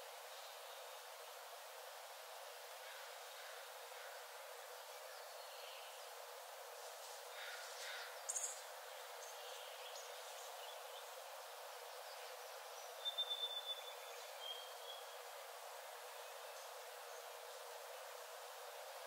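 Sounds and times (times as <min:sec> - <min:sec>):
soft steady hiss: 0:00.0 - 0:19.0
songbird calls: 0:12.1 - 0:15.2.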